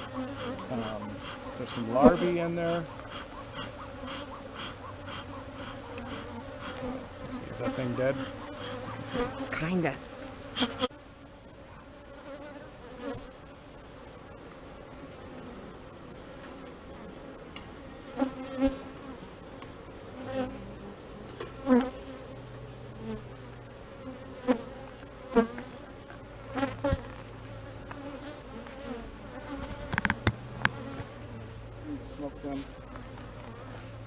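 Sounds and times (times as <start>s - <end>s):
bee colony buzzing: 0.0s - 34.0s
single bees droning past: 0.0s - 34.0s
sharp knocks and clicks: 29.8s - 31.1s.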